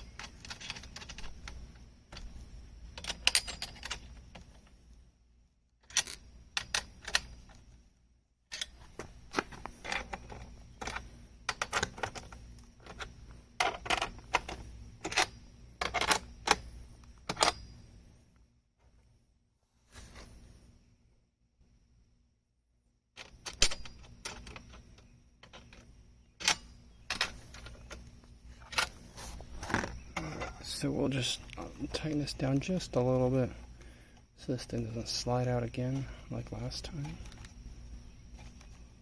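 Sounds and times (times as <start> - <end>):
metal frame clicks and rattles: 0.0 - 4.7, 5.8 - 7.6, 8.5 - 17.8, 23.2 - 30.9.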